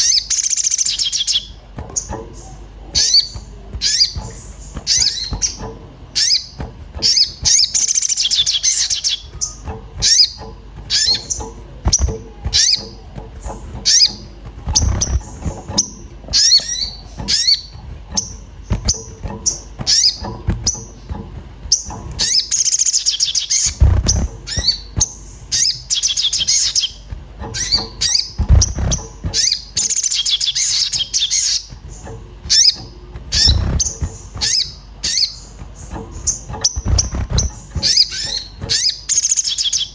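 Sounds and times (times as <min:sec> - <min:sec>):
rapid high bird twittering: 0:00.0 - 0:39.9
dull low thuds: 0:23.6 - 0:25.4, 0:27.1 - 0:29.8.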